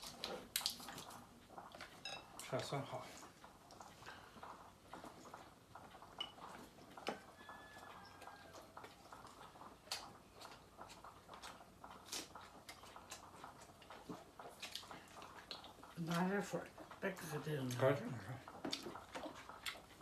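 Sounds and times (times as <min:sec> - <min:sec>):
tableware clinking: 0:02.0 - 0:02.3.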